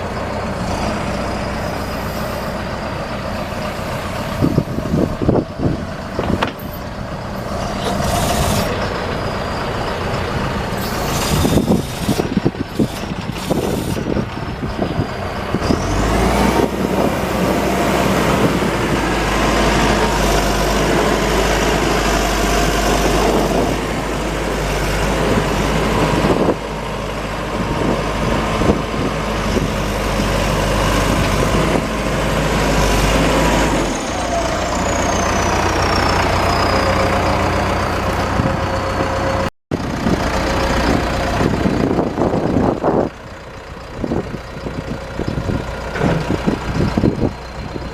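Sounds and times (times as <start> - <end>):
diesel engine droning: 0.0 - 47.9
clanks and knocks: 6.2 - 6.7.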